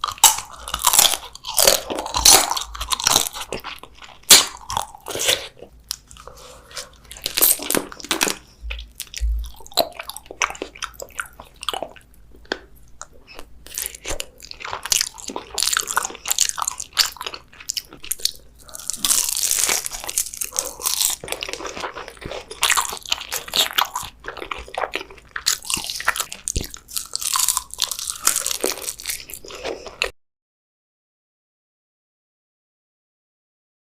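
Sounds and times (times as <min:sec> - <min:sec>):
person chewing crunchy food: 0:00.0 - 0:30.1.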